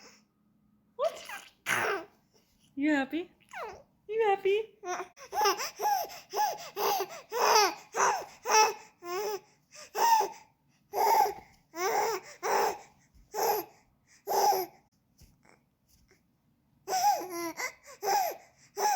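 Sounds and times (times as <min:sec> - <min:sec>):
baby laughing and babbling: 0:01.0 - 0:02.2, 0:03.5 - 0:03.9, 0:04.8 - 0:13.7, 0:14.3 - 0:14.8, 0:16.9 - 0:18.9.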